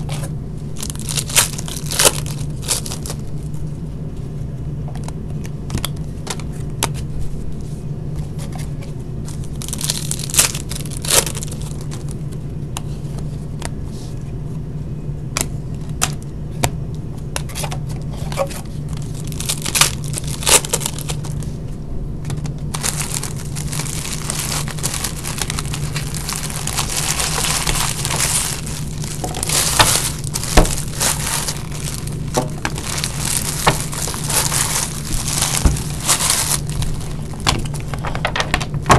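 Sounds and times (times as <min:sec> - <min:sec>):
wrappers crinkling: 0:00.0 - 0:03.6, 0:08.5 - 0:12.3, 0:18.3 - 0:21.5, 0:22.4 - 0:38.3
steady low hum: 0:00.0 - 0:38.9.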